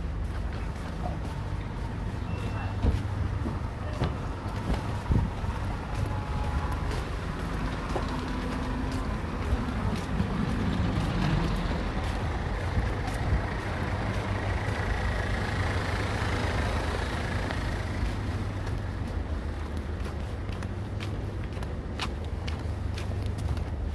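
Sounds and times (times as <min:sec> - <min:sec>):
heavy vehicle engine rumbling: 0:00.0 - 0:23.9
road traffic: 0:00.0 - 0:23.9.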